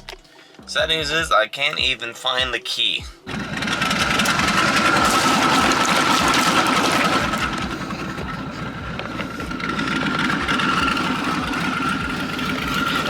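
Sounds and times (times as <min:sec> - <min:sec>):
car engine idling: 0:03.3 - 0:13.0
steady high whine: 0:03.3 - 0:13.0.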